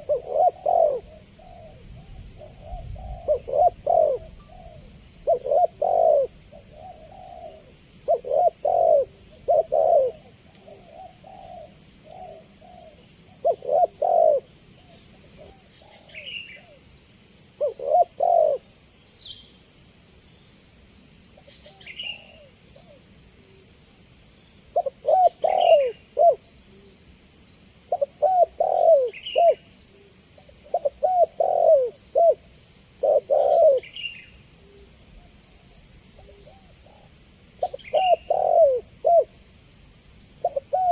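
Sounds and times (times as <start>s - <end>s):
doves cooing: 0.0s - 16.8s, 17.6s - 18.7s, 24.8s - 26.9s, 27.9s - 34.9s, 36.2s - 39.4s, 40.4s - 40.9s
steady high hiss: 0.0s - 40.9s.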